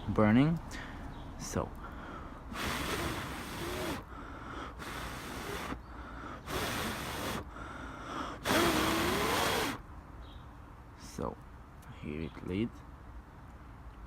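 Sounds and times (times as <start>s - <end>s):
person blowing into tinder: 2.5s - 7.6s, 8.2s - 9.8s.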